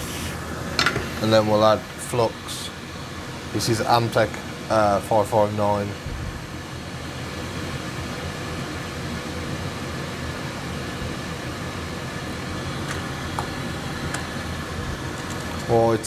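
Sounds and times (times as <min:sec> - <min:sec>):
fan blowing hiss: 0:00.0 - 0:16.0.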